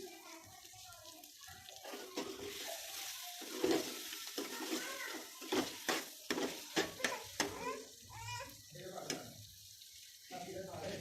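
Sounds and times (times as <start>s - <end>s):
chicken sizzling in a pan: 0.0s - 11.0s
metal spoon scraping a pan: 1.8s - 7.9s.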